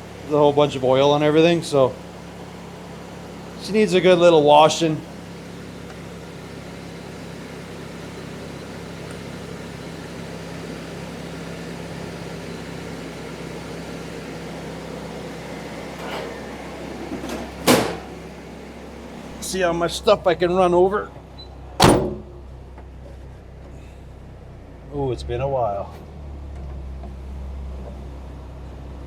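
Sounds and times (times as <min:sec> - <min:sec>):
car engine idling: 0:00.0 - 0:29.0
sharp clunk: 0:17.1 - 0:18.2, 0:21.8 - 0:22.3.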